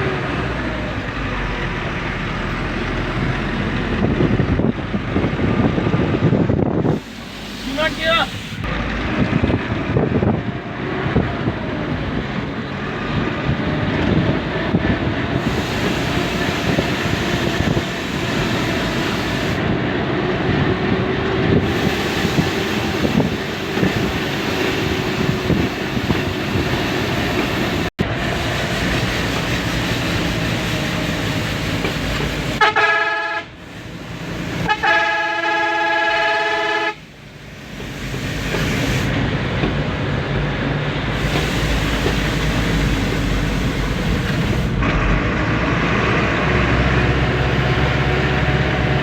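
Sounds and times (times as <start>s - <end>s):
truck engine and road noise: 0.0s - 49.0s
truck horn blasts: 15.4s - 19.6s, 21.6s - 25.7s, 32.5s - 33.6s, 34.5s - 37.1s.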